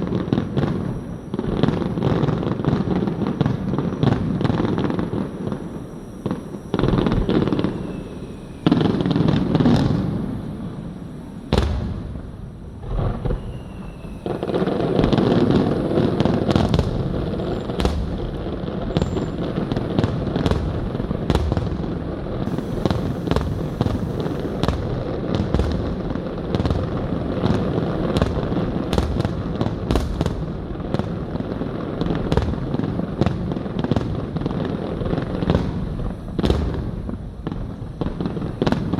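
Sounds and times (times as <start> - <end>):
firework shells bursting: 11.5 - 31.4.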